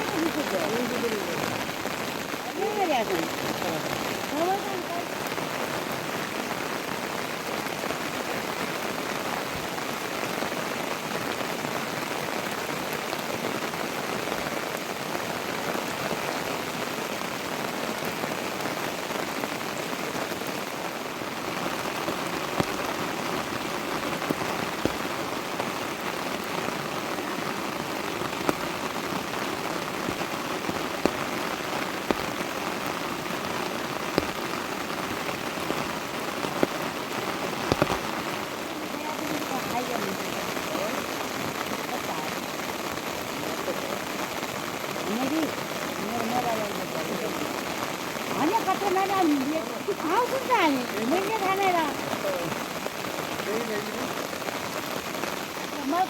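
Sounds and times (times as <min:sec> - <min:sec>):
heavy rain falling: 0:00.0 - 0:56.0
sharp drip impacts: 0:22.4 - 0:25.7, 0:28.2 - 0:36.9, 0:37.6 - 0:38.2.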